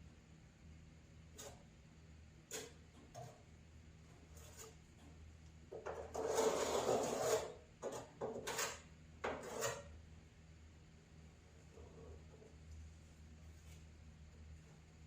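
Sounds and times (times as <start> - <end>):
rubbing and scraping handling: 4.1 - 5.1, 5.7 - 9.9.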